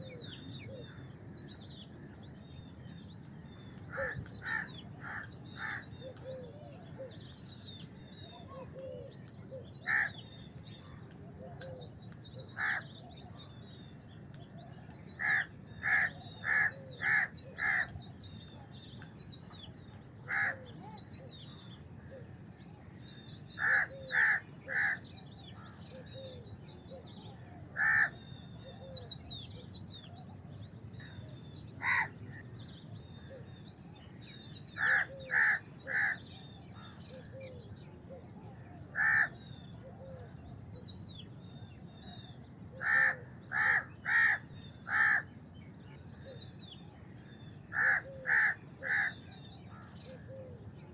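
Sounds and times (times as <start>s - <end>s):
small birds chirping: 0.0s - 50.9s
crow cawing: 3.9s - 5.9s, 9.9s - 10.2s, 12.6s - 12.9s, 15.2s - 18.0s, 20.3s - 20.7s, 23.6s - 25.0s, 27.8s - 28.2s, 31.8s - 32.1s, 34.8s - 36.2s, 39.0s - 39.3s, 42.8s - 45.3s, 47.7s - 49.2s.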